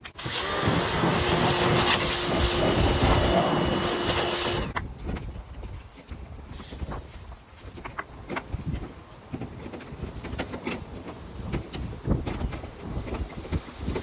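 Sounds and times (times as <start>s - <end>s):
pressure washer spraying: 0.2s - 4.8s
wind buffeting microphone: 0.5s - 14.0s.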